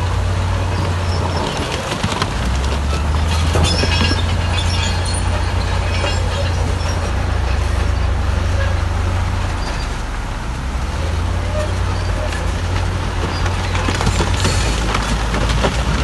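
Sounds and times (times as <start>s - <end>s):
diesel machine droning: 0.0s - 16.0s
stone and metal scraping: 3.0s - 8.9s.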